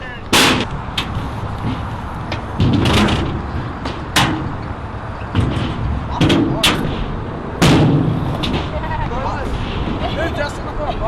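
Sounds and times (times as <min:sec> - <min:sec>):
wheels rolling on concrete: 0:00.0 - 0:11.0
loud hard impact: 0:00.3 - 0:01.9, 0:05.3 - 0:08.9.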